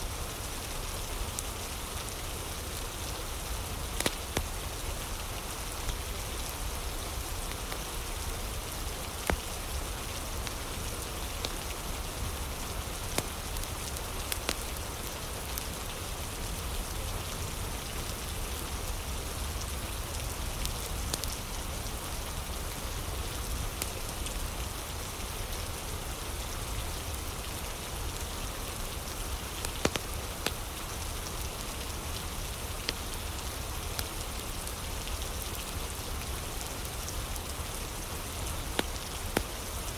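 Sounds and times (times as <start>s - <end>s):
steady rain: 0.0s - 39.9s
crackling fire with pops: 3.7s - 5.0s, 7.3s - 15.7s, 20.2s - 21.6s, 28.1s - 37.6s, 38.2s - 39.9s.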